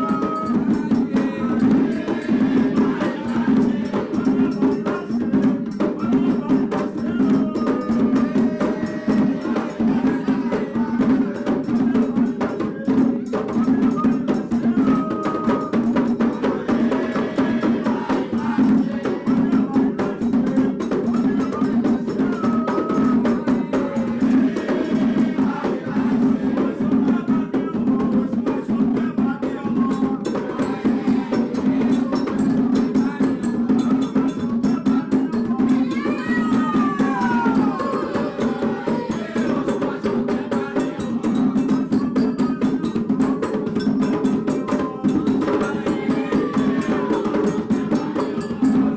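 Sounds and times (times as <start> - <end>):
hand drums played fast: 0.0 - 48.9.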